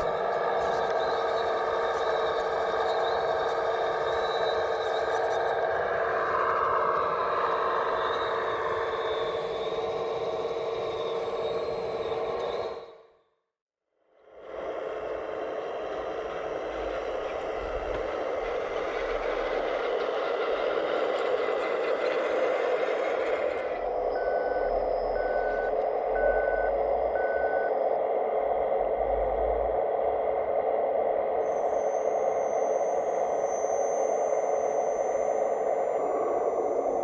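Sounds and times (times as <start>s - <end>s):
model construction machine noise: 0.0s - 13.2s, 14.3s - 27.7s
reversing alarm beeping: 18.4s - 29.7s.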